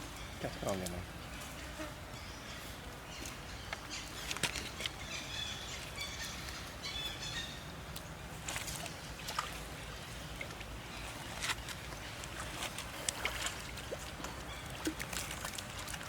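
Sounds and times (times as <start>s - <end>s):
water sloshing and splashing: 7.8s - 16.0s.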